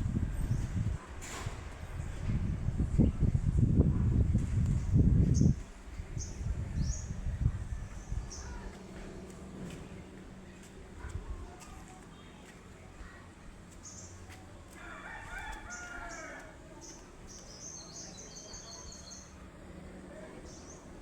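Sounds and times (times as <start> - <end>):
small birds chirping: 4.7 - 9.1, 13.0 - 14.3, 15.6 - 19.4
rooster crowing: 14.8 - 16.6.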